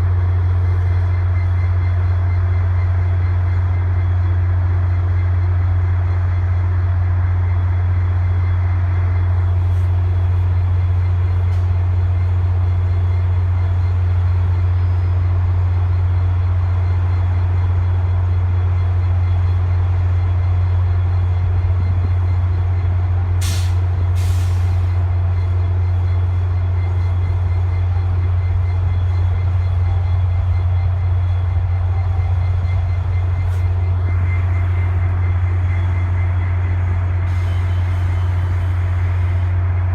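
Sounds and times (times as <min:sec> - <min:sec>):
diesel locomotive idling: 0:00.0 - 0:39.9
air brake hisses: 0:23.4 - 0:25.0, 0:37.3 - 0:39.5.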